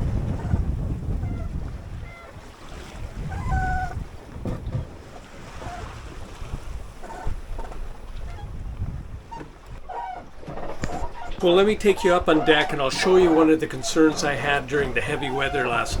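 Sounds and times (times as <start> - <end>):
waves washing around boat: 0.0 - 16.0
wind buffeting microphone: 0.0 - 16.0
short squeaks: 9.3 - 16.0.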